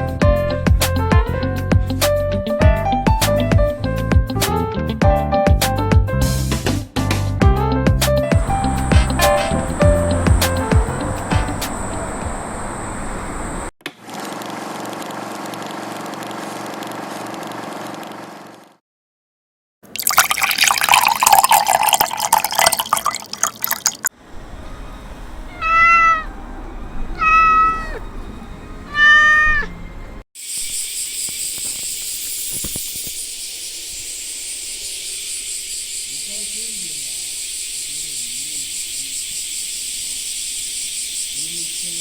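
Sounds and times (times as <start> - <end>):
steady high hiss: 8.4 - 13.7, 30.4 - 42.0
cat meowing: 25.4 - 28.2, 28.9 - 29.8.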